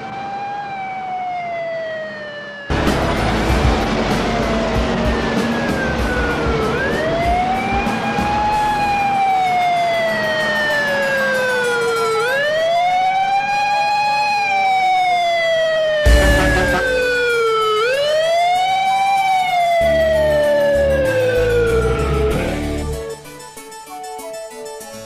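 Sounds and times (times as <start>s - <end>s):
fire truck siren wailing: 0.0s - 23.3s
low traffic rumble: 2.7s - 9.0s, 16.1s - 17.5s.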